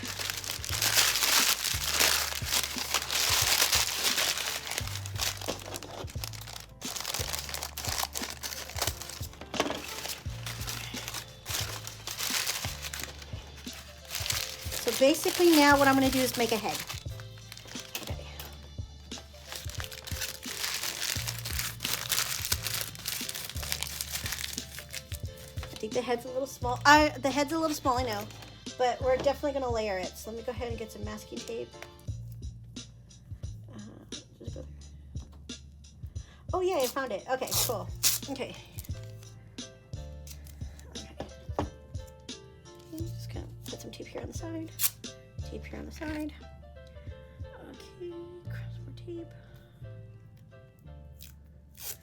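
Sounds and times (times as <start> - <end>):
paper crumpling: 0.0 - 18.2, 19.2 - 25.9
background music: 0.0 - 52.0.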